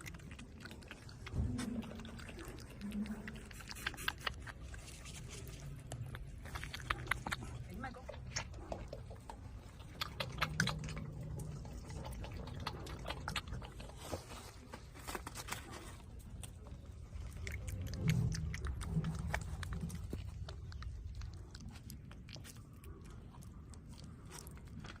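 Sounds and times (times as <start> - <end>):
animal chewing and crunching food: 0.0 - 25.0.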